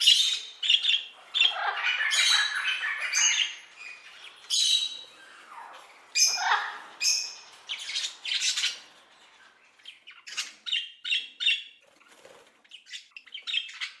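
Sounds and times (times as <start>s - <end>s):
parrot screeching and squawking: 0.1s - 8.9s.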